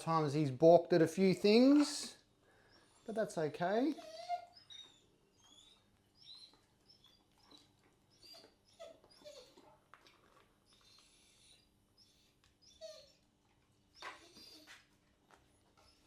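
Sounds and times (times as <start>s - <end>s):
puppy whimpering squeaks: 3.9s - 9.6s, 10.7s - 13.2s, 13.9s - 14.8s, 15.8s - 16.0s.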